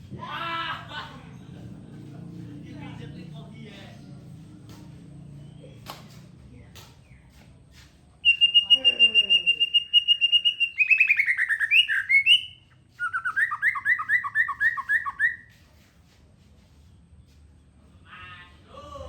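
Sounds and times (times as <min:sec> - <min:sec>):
songbird singing: 0:08.2 - 0:15.6.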